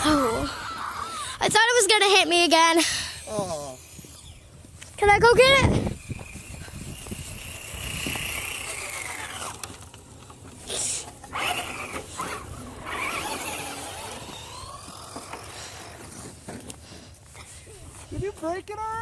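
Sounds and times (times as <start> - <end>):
toy truck motor whining: 2.7 - 4.6, 5.2 - 16.7.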